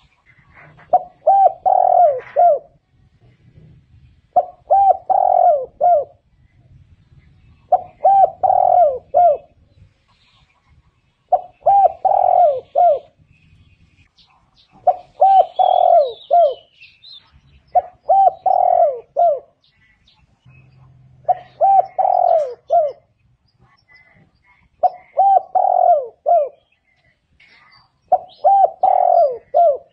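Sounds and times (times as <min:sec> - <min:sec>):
dove cooing: 0:00.0 - 0:02.8, 0:04.3 - 0:06.3, 0:07.6 - 0:09.6, 0:11.3 - 0:13.2, 0:14.8 - 0:16.8, 0:17.7 - 0:19.8, 0:21.2 - 0:23.2, 0:24.8 - 0:26.8, 0:28.1 - 0:29.9
small bird chirps: 0:26.4 - 0:29.9.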